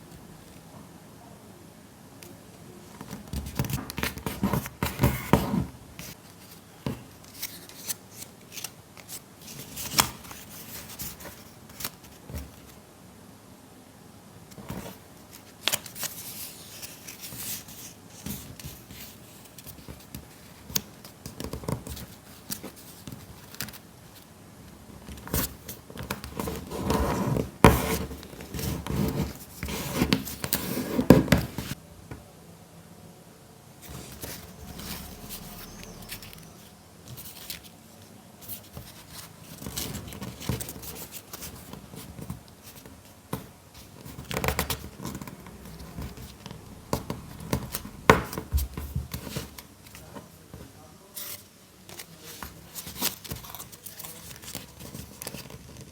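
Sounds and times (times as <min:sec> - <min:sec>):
paper crinkling and folding: 0:03.0 - 0:12.8, 0:14.5 - 0:24.3, 0:33.8 - 0:50.4, 0:51.0 - 0:55.9.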